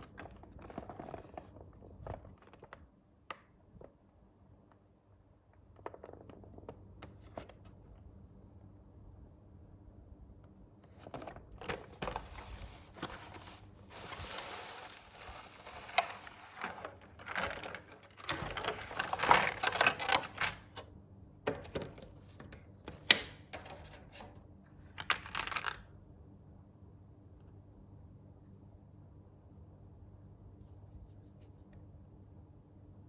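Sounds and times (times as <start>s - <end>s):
packaging crinkling and rustling: 0.0s - 2.8s, 11.0s - 20.8s, 24.9s - 25.8s.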